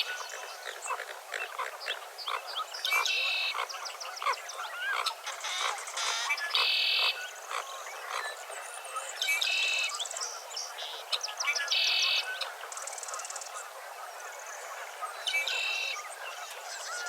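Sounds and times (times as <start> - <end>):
frogs croaking: 0.0 - 8.5
birds calling and singing: 0.0 - 17.0.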